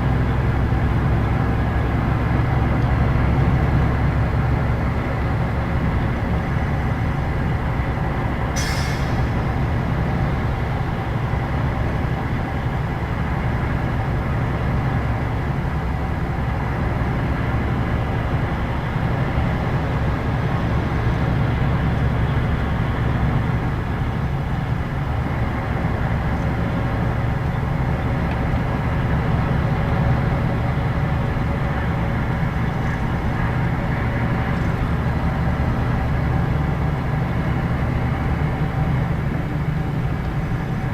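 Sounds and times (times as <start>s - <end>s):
bus engine and road rumble: 0.0s - 40.9s
short high hiss: 8.6s - 9.3s.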